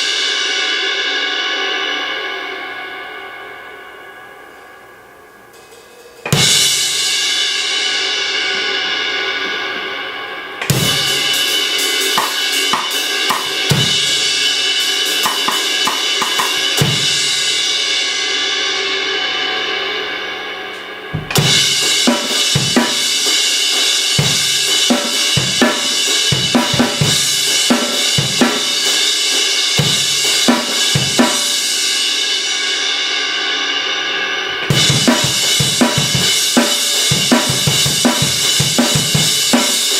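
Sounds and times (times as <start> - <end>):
drum kit grooves: 5.5 - 9.5, 10.6 - 17.8, 20.8 - 32.3, 34.6 - 39.9.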